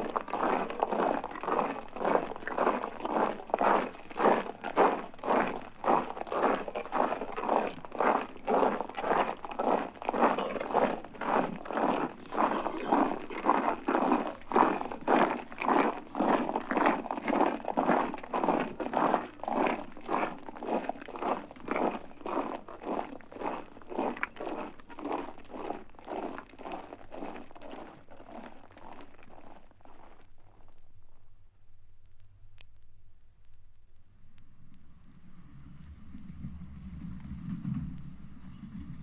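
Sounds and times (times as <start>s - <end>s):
footsteps crunching: 0.0s - 30.8s.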